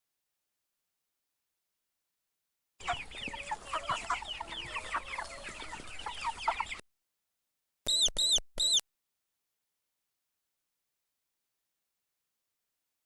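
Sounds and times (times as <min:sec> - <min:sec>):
chickens calling: 0:02.8 - 0:06.8, 0:07.9 - 0:08.8.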